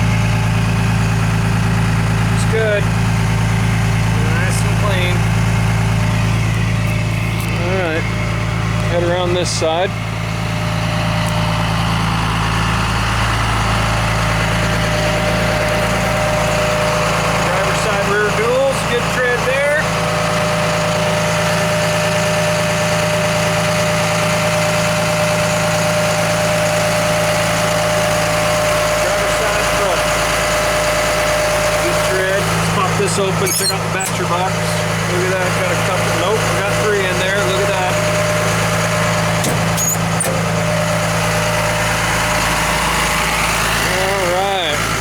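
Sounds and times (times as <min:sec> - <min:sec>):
diesel engine idling: 0:00.0 - 0:45.0
brief high squeak: 0:33.4 - 0:34.2, 0:39.4 - 0:40.4.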